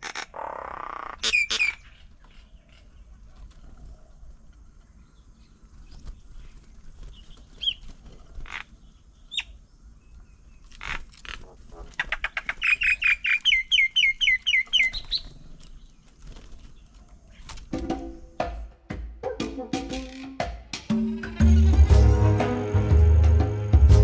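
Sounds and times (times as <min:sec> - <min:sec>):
birds chirping: 0:00.0 - 0:18.8.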